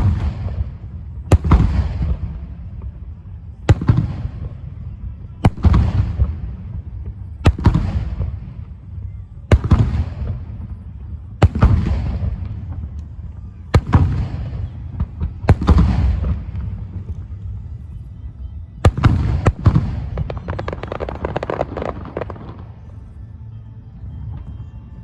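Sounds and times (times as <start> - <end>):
firework bangs: 0.0 - 3.0, 5.5 - 8.7, 9.5 - 12.9, 13.8 - 17.6, 18.9 - 23.0.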